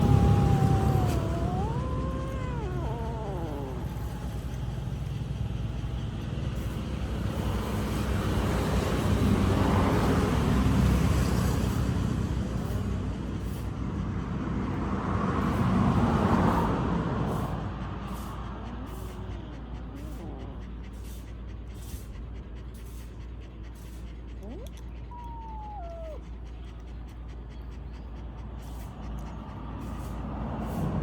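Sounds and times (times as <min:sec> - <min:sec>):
long falling animal call: 0:00.0 - 0:04.7
low rumble: 0:00.0 - 0:07.5.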